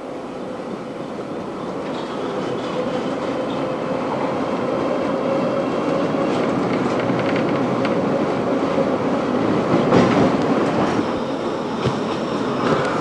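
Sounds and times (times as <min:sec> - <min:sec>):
tram hum: 0:00.0 - 0:13.0
tram wheels clattering on rails: 0:00.2 - 0:13.0.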